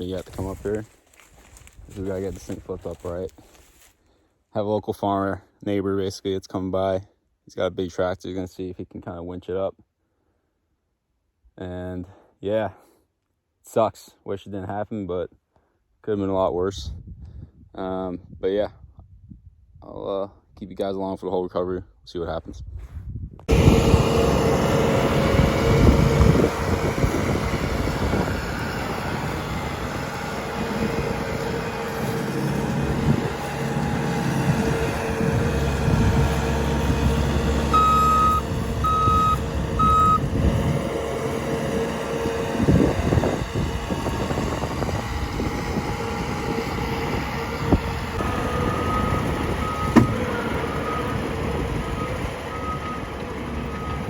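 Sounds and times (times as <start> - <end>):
heavy diesel machinery running: 23.5 - 54.0
backup alarm beeping: 35.6 - 40.3, 48.3 - 54.0.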